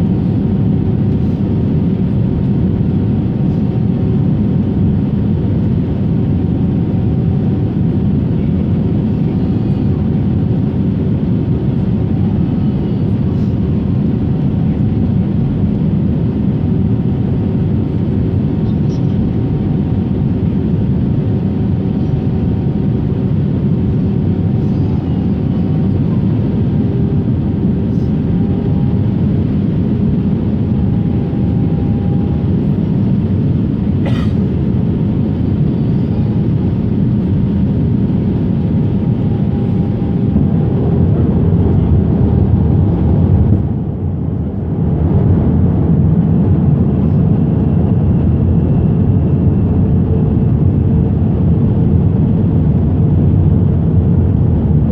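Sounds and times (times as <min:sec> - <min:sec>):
aircraft engines and airflow rumble: 0:00.0 - 0:54.9.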